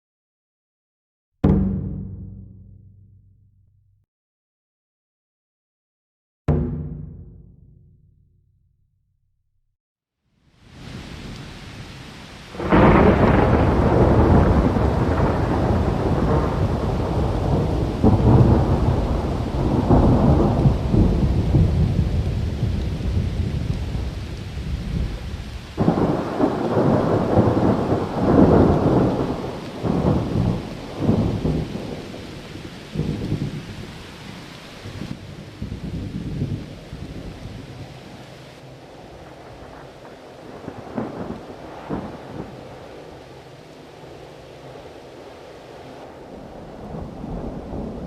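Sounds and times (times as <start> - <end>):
steady rain: 10.3 - 48.0
rolling thunder: 10.8 - 38.1, 39.0 - 48.0.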